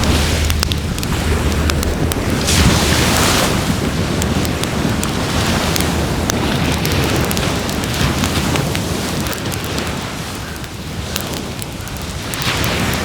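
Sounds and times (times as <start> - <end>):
low rushing noise: 0.0 - 6.3
wood fire crackling: 0.0 - 13.0.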